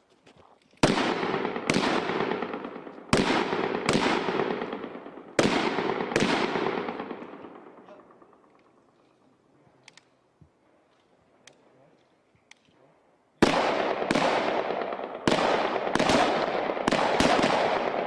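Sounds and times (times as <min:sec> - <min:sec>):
gunshots with long echo: 0:00.8 - 0:08.6, 0:13.4 - 0:18.0.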